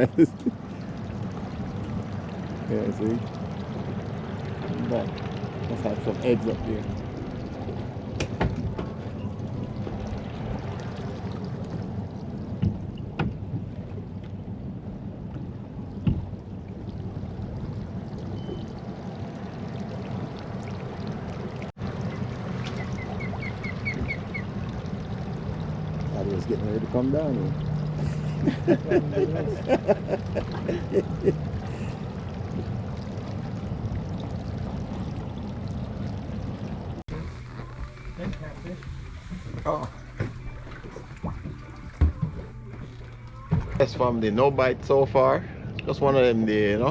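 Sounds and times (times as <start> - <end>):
boat engine rumble: 0.0 - 46.9
knocks against hull: 8.1 - 9.1, 12.6 - 13.7, 16.0 - 16.4, 39.8 - 43.8.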